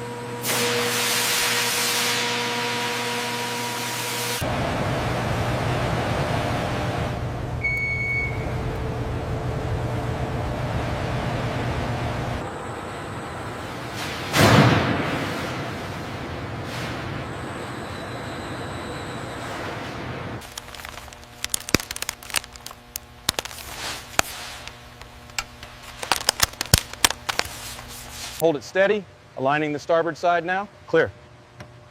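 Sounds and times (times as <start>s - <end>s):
machine hum: 20.4s - 28.4s
steady rumbling: 20.4s - 28.4s.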